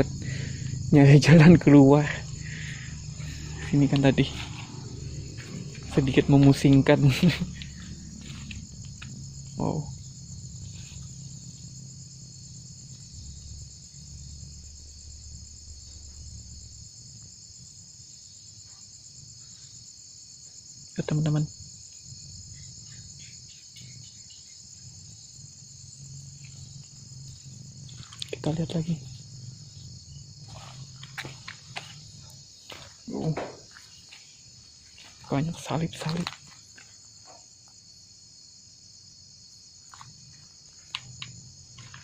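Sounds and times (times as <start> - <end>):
low rumble: 0.0 - 10.6
crickets chirring: 0.0 - 42.0
footsteps: 3.1 - 9.3, 26.4 - 37.5, 41.7 - 42.0.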